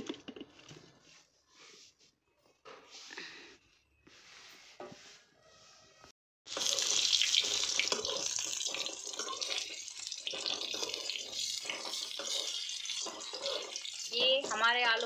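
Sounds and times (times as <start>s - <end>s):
potatoes sizzling in oil: 6.5s - 15.0s
spoon stirring in pan: 6.5s - 15.0s.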